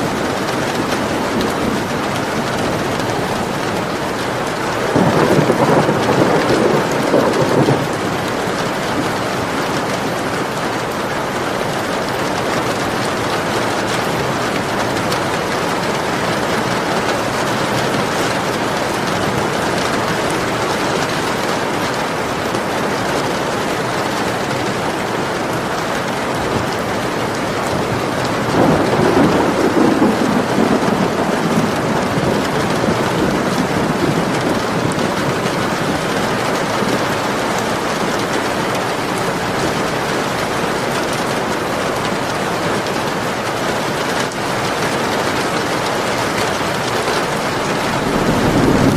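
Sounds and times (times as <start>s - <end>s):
thunder rolling: 0.0s - 10.4s, 26.4s - 41.6s, 47.2s - 48.9s
heavy rain: 0.0s - 48.9s.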